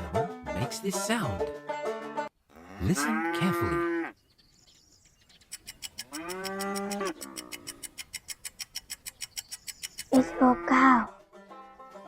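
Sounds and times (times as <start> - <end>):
cow mooing: 2.5 - 4.2, 6.0 - 7.8
rapid even ticking: 5.3 - 10.2.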